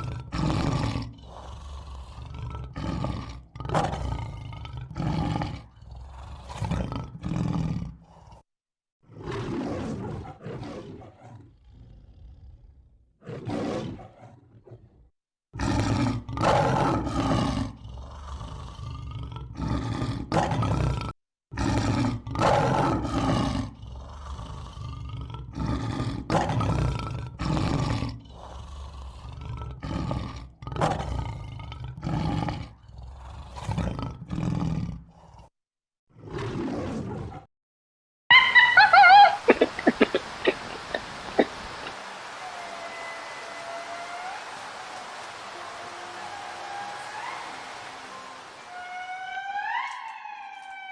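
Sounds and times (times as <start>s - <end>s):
large animal roaring and growling: 0.0s - 8.4s, 9.1s - 37.5s.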